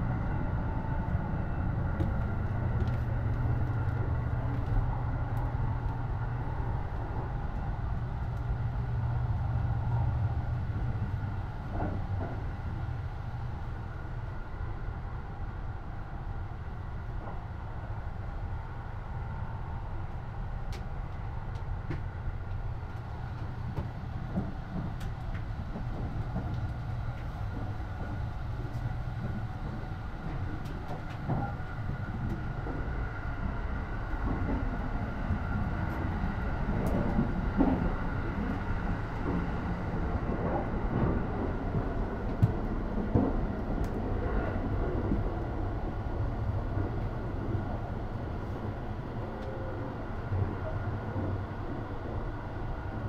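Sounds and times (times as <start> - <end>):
train interior low rumble: 0.0 - 53.0.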